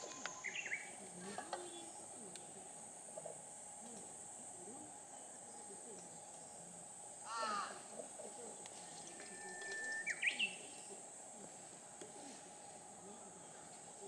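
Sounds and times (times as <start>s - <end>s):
birds singing: 0.0s - 2.5s, 4.0s - 11.3s
high-pitched insect drone: 0.0s - 11.4s.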